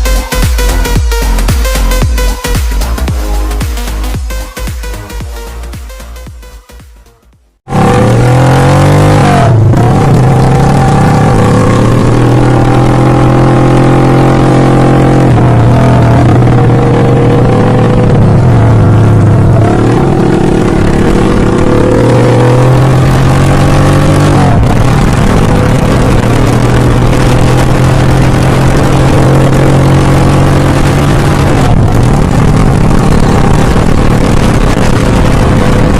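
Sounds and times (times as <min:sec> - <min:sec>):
loud motorcycle engine running: 0:07.6 - 0:35.9.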